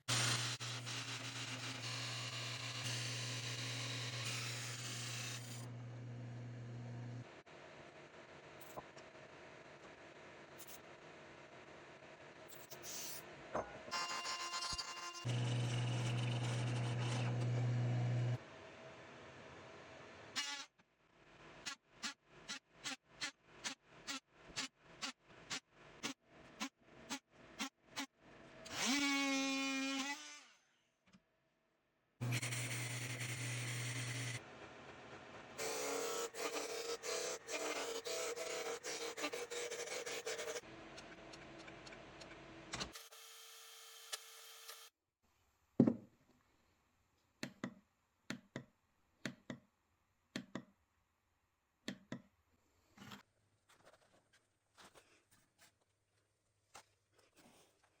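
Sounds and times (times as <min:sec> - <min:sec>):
knock on tap light: 0:45.8 - 0:46.1.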